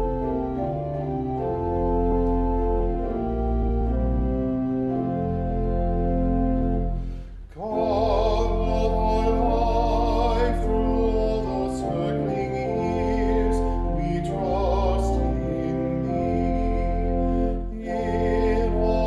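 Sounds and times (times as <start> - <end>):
sustained organ chords: 0.0 - 19.0
person singing with vibrato: 7.5 - 19.0.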